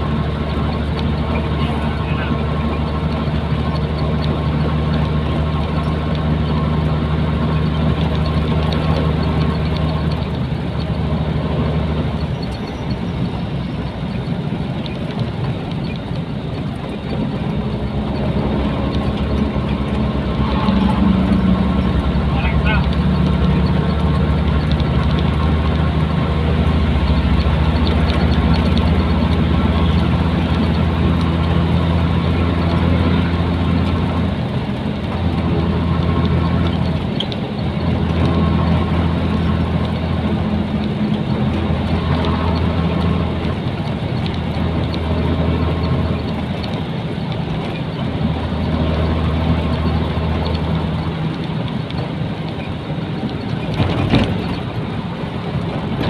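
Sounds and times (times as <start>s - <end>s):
road noise: 0.0s - 56.0s
truck diesel engine running: 0.0s - 56.0s.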